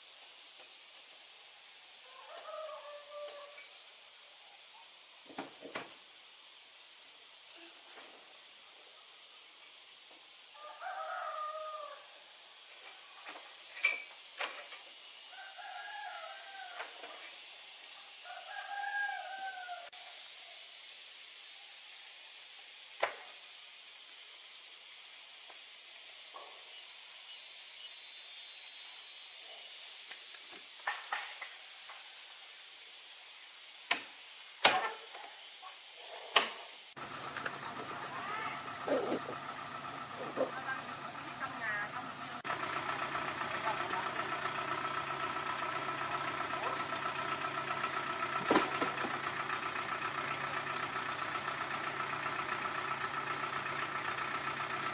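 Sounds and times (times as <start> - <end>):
steady high hiss: 0.0 - 48.0
rooster crowing: 2.0 - 3.8, 10.5 - 12.2, 15.2 - 17.2, 18.1 - 20.2, 37.0 - 42.5.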